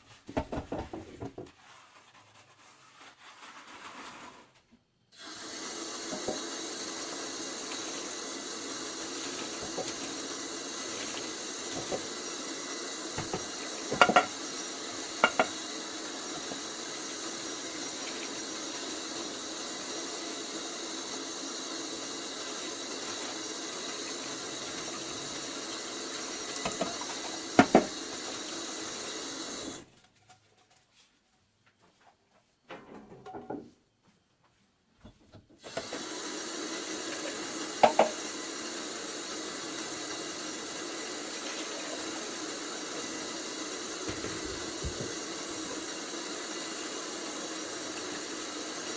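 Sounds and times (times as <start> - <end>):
dishes knocking against sink: 0.4 - 1.5, 11.8 - 12.1, 13.2 - 14.4, 15.2 - 15.6, 26.6 - 28.0, 37.8 - 38.2, 44.1 - 45.2
tap running into sink: 6.0 - 6.6, 9.0 - 12.4, 13.1 - 15.8, 23.0 - 28.7, 37.1 - 38.4, 43.9 - 46.0.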